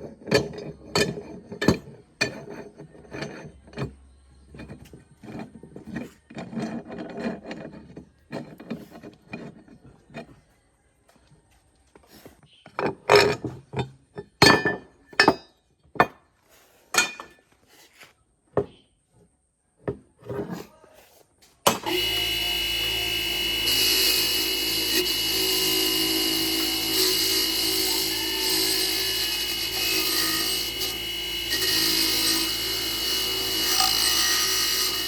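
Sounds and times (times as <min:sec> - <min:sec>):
parts knocking and clinking: 0:00.0 - 0:10.4, 0:12.6 - 0:16.3, 0:16.9 - 0:17.4
power tool running: 0:21.7 - 0:35.0.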